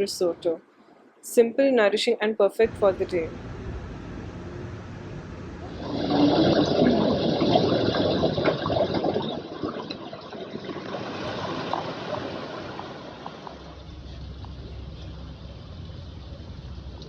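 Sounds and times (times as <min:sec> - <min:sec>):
water running and splashing: 0:05.6 - 0:17.0.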